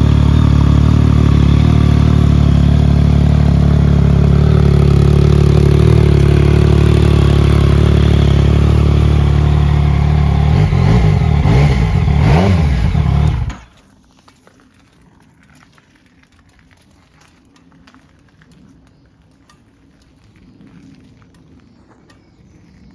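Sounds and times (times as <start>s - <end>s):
motorcycle engine idling and revving: 0.0s - 13.7s.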